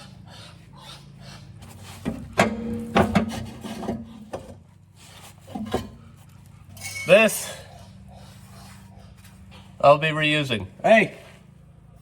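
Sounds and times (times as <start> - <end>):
metal clanks with ringing note: 6.8 - 7.4.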